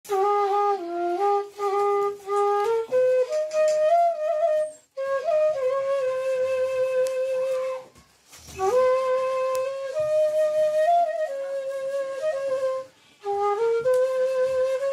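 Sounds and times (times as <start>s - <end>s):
solo flute melody: 0.1s - 14.9s.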